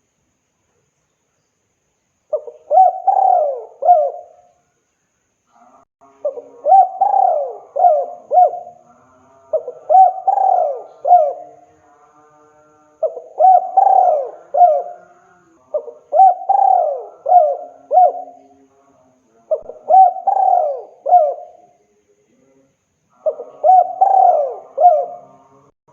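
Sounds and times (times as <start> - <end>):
dove cooing: 2.3 - 4.4, 6.2 - 8.9, 9.5 - 11.6, 13.0 - 18.4, 19.5 - 21.7, 23.2 - 25.6.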